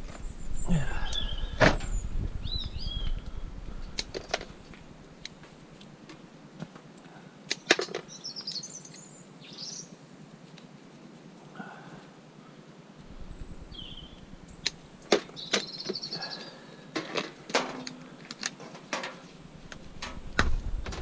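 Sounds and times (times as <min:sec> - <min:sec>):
small birds chirping: 0:00.0 - 0:05.8, 0:07.0 - 0:10.0, 0:13.0 - 0:16.9
low rumble: 0:13.0 - 0:15.0.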